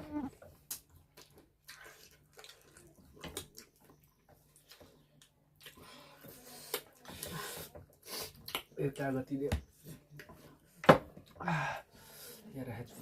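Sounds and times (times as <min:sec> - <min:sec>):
wet chewing and mouth noises: 0:00.2 - 0:08.8.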